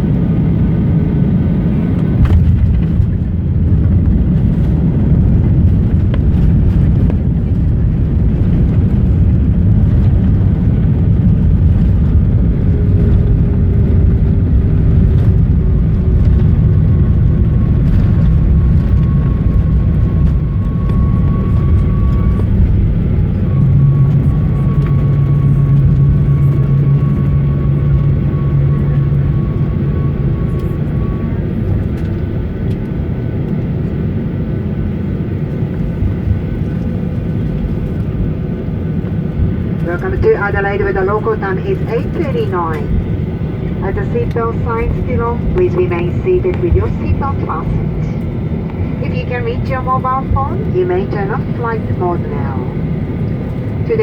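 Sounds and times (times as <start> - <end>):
jet engines rumbling: 0.0 - 54.0
steady low hum: 0.0 - 54.0.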